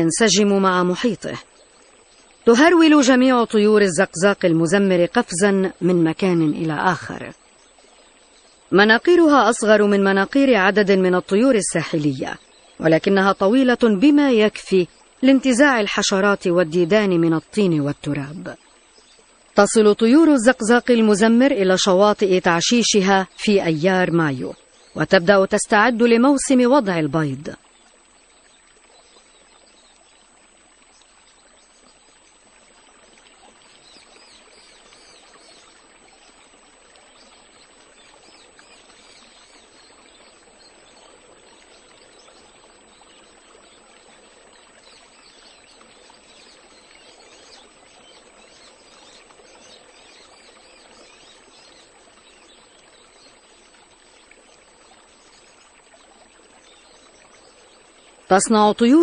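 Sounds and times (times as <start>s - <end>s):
water lapping at shore: 0.0s - 59.0s.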